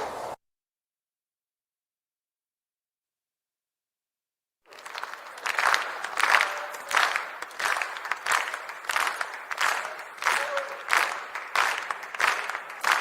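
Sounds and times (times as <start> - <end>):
crowd clapping in unison: 4.7 - 13.0
crowd noise: 4.7 - 13.0.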